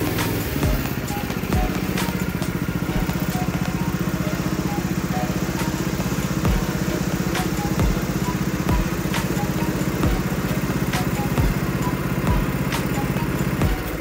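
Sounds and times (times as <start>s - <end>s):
go-kart engine running: 0.0s - 14.0s.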